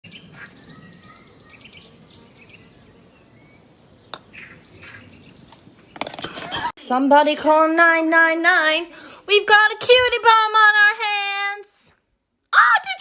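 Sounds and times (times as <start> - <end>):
birds chirping: 0.0 - 6.7.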